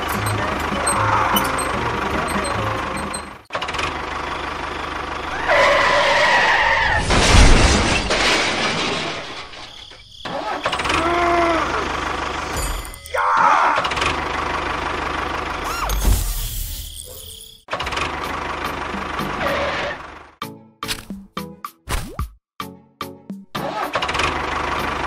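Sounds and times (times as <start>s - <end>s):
tractor engine running: 0.0s - 6.6s, 11.6s - 16.0s, 17.7s - 20.4s, 24.1s - 25.0s.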